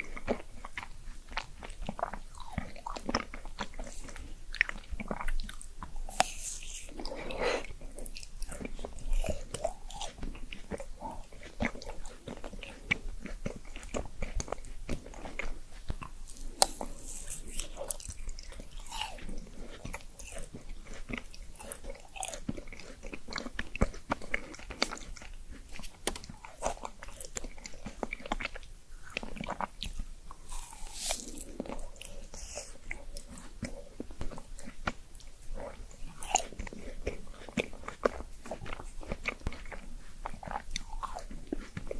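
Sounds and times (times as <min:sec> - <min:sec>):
person chewing food: 0:00.0 - 0:41.9
crunching: 0:29.1 - 0:33.4.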